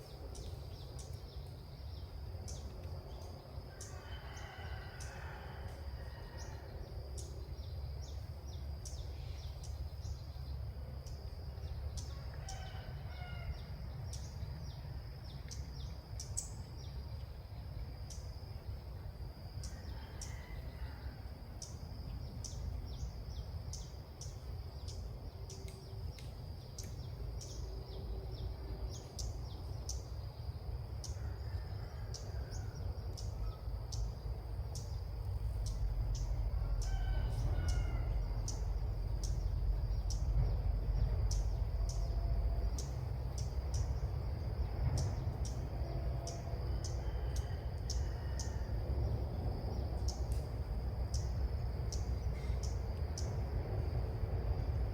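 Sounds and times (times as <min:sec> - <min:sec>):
wind rumble on microphone: 0:19.2 - 0:54.9.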